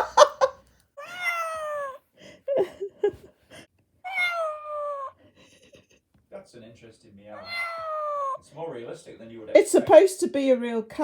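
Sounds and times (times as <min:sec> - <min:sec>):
recorded cat meows from speaker: 0:01.0 - 0:02.0, 0:04.0 - 0:05.1, 0:07.4 - 0:08.4.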